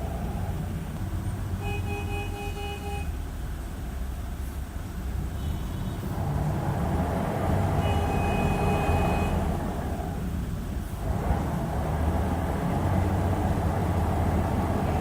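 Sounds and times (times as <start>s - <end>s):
bus engine driving: 0.0s - 15.0s.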